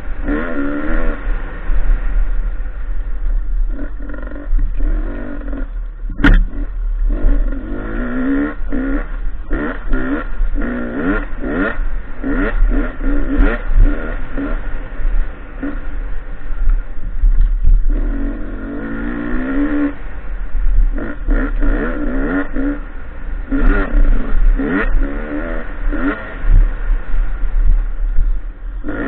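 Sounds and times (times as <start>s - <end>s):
motorcycle engine revving: 0.0s - 29.0s
steady low rumble: 0.0s - 29.0s
sharp knock: 6.1s - 6.6s.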